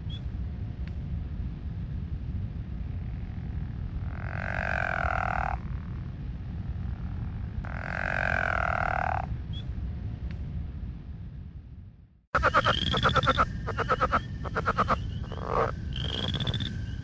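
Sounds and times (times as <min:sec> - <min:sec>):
low background rumble: 0:00.0 - 0:17.0
trilled frog calls: 0:04.0 - 0:05.8, 0:07.6 - 0:09.3, 0:12.4 - 0:17.0.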